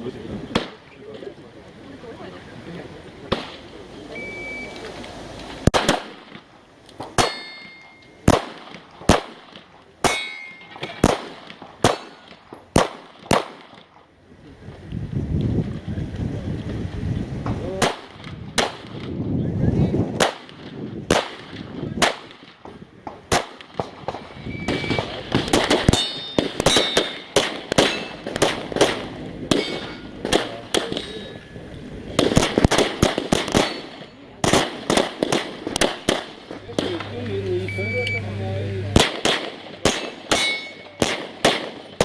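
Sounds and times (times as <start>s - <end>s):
metallic ringing: 7.2s - 8.2s, 10.1s - 11.0s, 24.4s - 32.0s, 33.6s - 34.2s, 40.0s - 41.0s
handgun shots: 25.4s - 31.1s, 32.2s - 37.1s, 39.0s - 41.8s.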